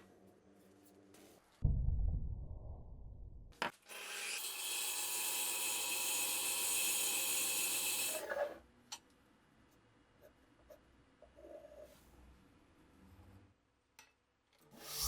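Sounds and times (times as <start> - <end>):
low rumble: 1.6 - 3.6
small power tool whirring: 3.9 - 8.3.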